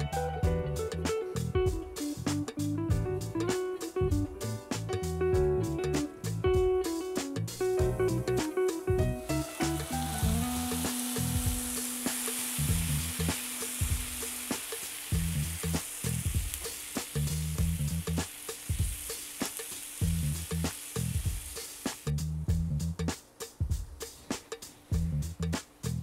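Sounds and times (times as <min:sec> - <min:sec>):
faint background music: 0:00.0 - 0:26.0
vegetables sizzling in oil: 0:08.1 - 0:22.4.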